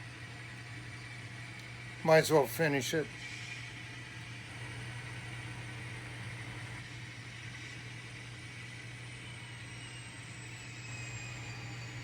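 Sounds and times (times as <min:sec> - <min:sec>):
model train running: 0:02.0 - 0:05.4, 0:06.8 - 0:12.0.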